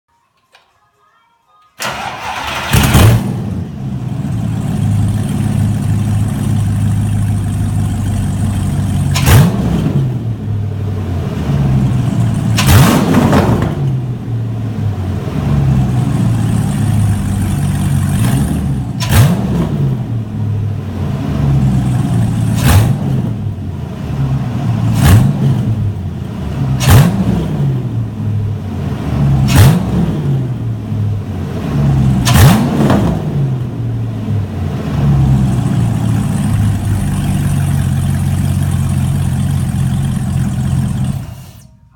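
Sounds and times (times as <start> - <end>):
engine revving: 1.8 - 41.7
car engine idling loudly: 3.7 - 9.3, 35.2 - 41.7.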